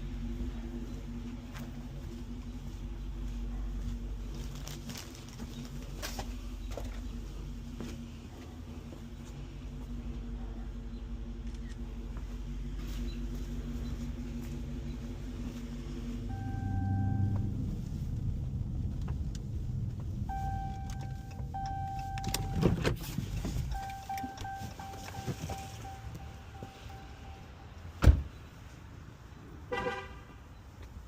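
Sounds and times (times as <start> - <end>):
car engine humming: 0.0 - 31.0
dashboard chime beeping: 16.3 - 17.4, 20.3 - 22.7, 23.6 - 27.6.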